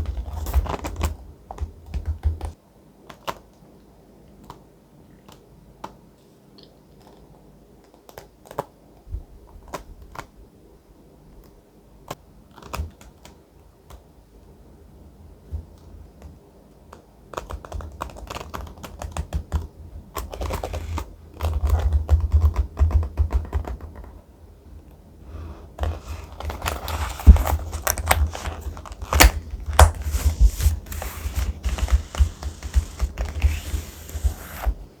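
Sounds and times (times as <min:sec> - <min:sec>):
thick paper rustling and crinkling: 0:25.8 - 0:35.0.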